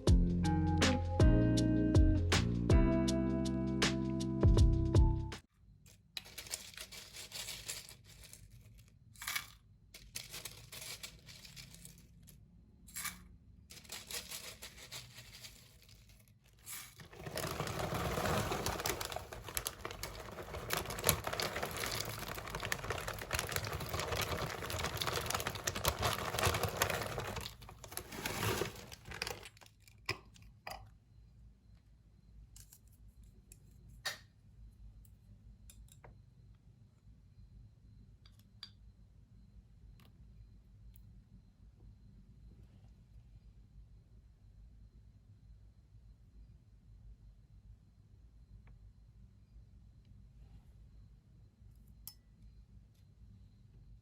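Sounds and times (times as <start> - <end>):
plastic packaging crinkling: 6.2 - 9.0, 10.0 - 12.1, 13.7 - 29.8.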